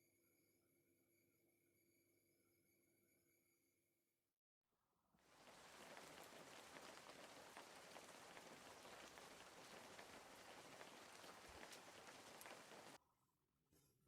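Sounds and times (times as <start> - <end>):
food sizzling in a pan: 5.3 - 13.0.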